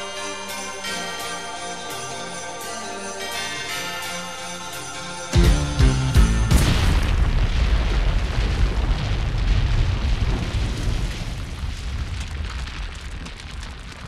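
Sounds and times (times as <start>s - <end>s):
explosion blast: 5.4s - 12.8s.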